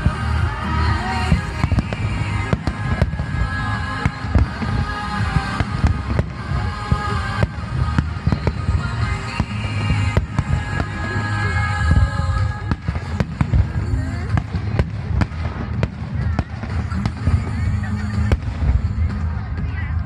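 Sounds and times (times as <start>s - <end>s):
deep rumble: 0.0s - 20.0s
fireworks bangs: 0.0s - 20.0s
music playing: 0.0s - 20.0s.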